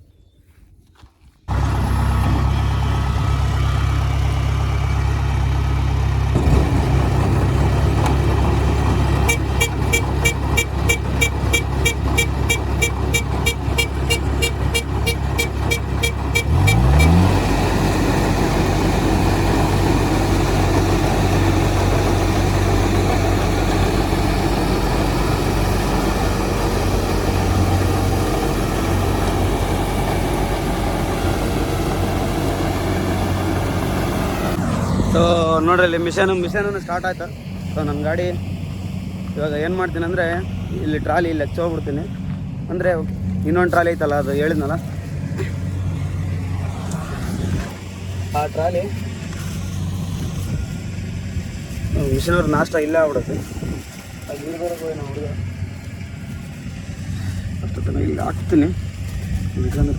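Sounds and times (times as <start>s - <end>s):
tractor diesel engine running: 1.5s - 59.9s
rapid high beeping: 9.3s - 17.2s.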